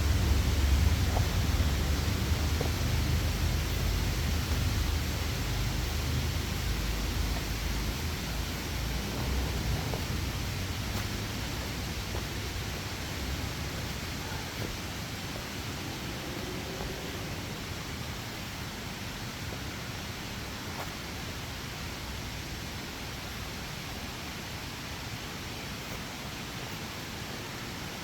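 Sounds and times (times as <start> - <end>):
stream rushing: 0.0 - 28.0.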